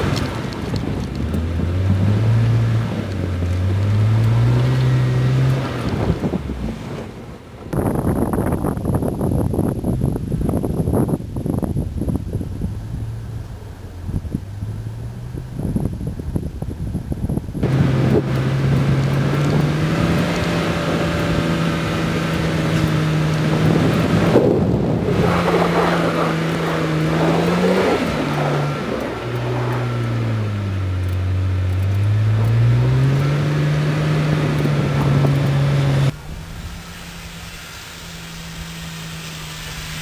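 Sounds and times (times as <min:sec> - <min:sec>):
car engine revving: 0:00.0 - 0:07.8, 0:12.3 - 0:40.0.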